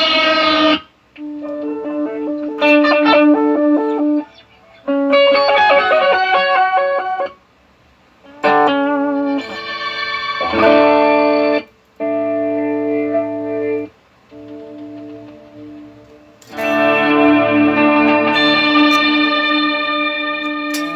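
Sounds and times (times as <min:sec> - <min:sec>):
electric guitar playing: 0:00.0 - 0:07.3, 0:08.3 - 0:20.9.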